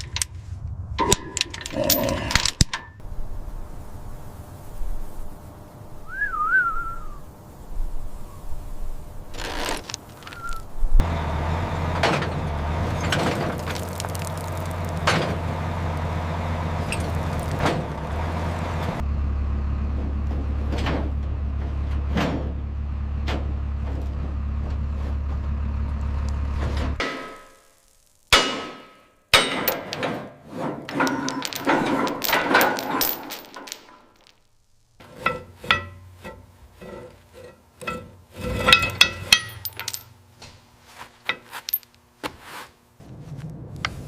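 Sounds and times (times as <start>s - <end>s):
metallic chain clanks: 1.1s - 3.0s, 30.8s - 40.2s
chain rattling clatter: 1.4s - 2.6s, 30.8s - 34.5s, 37.4s - 40.2s, 41.3s - 41.9s
sharp metal knocks: 27.0s - 27.6s, 28.3s - 34.0s, 35.0s - 36.5s.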